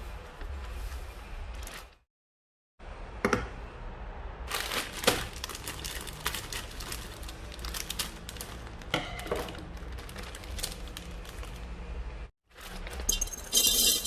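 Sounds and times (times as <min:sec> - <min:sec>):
plastic packaging crinkling: 0:04.5 - 0:11.8.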